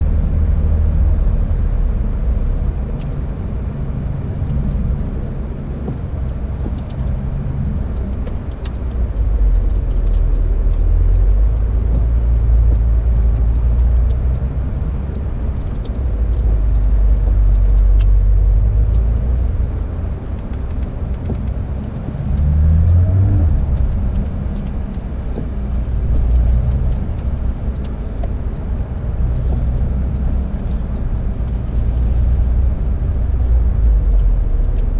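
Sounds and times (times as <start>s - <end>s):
sports car engine revving: 7.4s - 34.9s.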